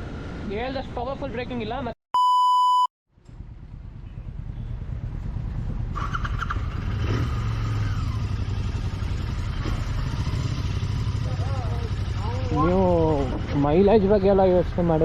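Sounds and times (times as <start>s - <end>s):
motorcycle engine running: 3.3s - 15.0s.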